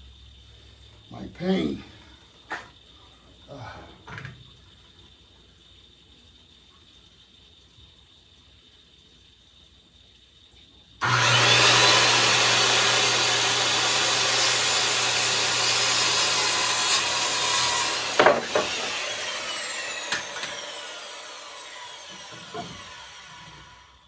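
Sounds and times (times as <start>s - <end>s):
electric saw cutting wood: 11.0s - 24.0s
knocks: 18.1s - 18.8s.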